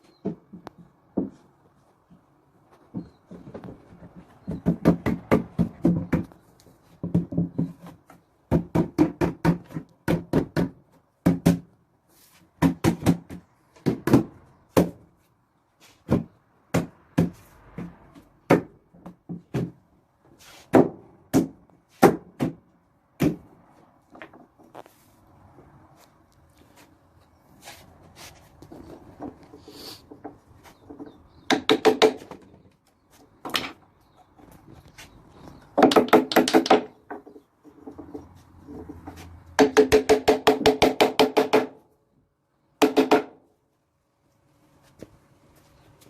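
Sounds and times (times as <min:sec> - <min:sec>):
sharp knocks on solid wood: 0:08.5 - 0:11.7, 0:20.7 - 0:22.6, 0:31.4 - 0:32.4, 0:35.8 - 0:37.4, 0:39.6 - 0:41.8, 0:42.8 - 0:43.4.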